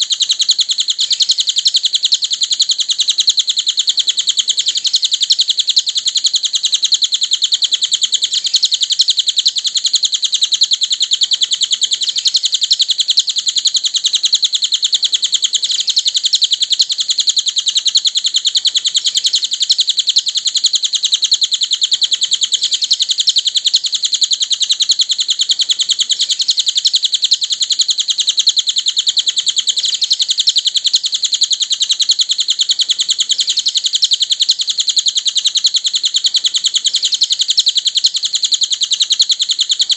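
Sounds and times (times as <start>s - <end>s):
bird high-pitched chittering trill: 0.0s - 39.9s.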